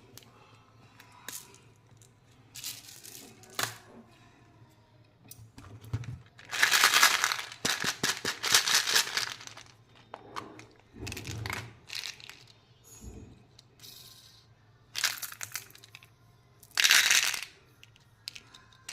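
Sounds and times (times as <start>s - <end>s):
plastic wrapper crinkling: 6.4s - 9.8s.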